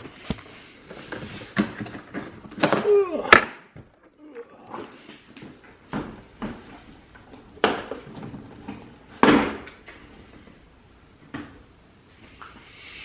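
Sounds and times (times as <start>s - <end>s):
tools clattering: 8.6s - 9.9s.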